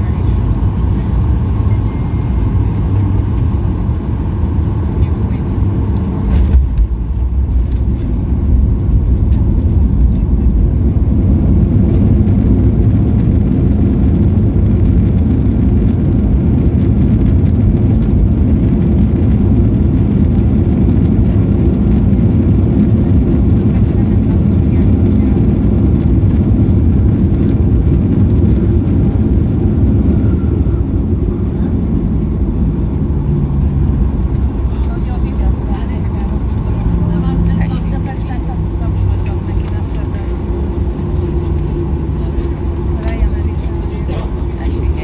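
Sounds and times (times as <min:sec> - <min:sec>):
airplane cabin engine rumble: 0:00.0 - 0:45.0.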